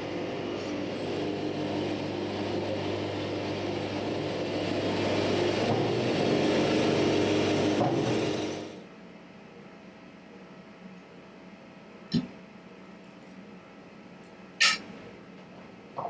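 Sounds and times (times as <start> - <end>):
band sawmill diesel engine running: 0.0 - 8.9.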